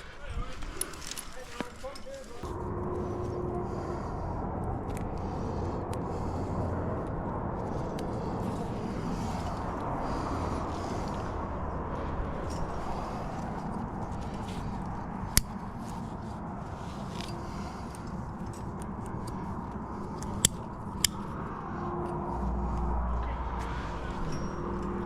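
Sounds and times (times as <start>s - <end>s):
metal climbing gear clinking: 0.0s - 2.5s, 12.0s - 21.3s, 24.1s - 25.0s
low hum: 2.4s - 25.0s.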